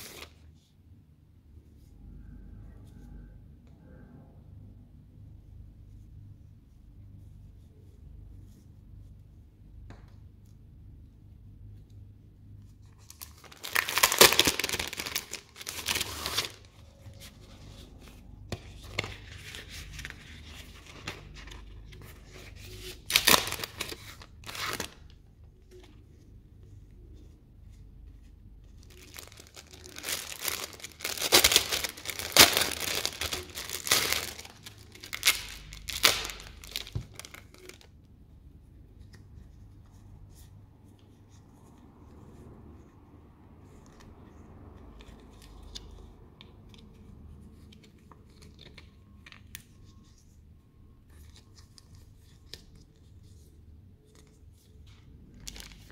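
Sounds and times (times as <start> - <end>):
packaging tearing and crinkling: 13.1 - 16.7, 22.9 - 25.0, 28.9 - 37.9, 55.4 - 55.9.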